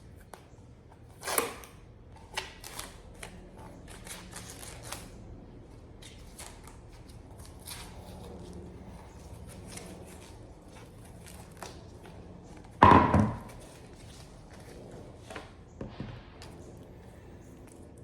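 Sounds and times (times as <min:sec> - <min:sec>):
loud ringing knock: 0:12.8 - 0:13.5.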